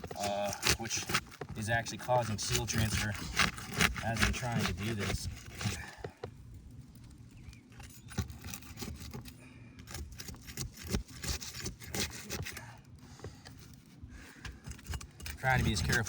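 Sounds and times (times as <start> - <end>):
roof shingles scraping: 0.0 - 6.1.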